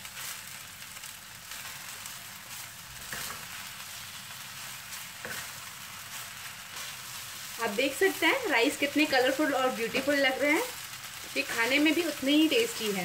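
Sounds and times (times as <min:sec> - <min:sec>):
fried rice sizzling: 0:00.0 - 0:13.0
spatula scraping pan: 0:02.5 - 0:07.5.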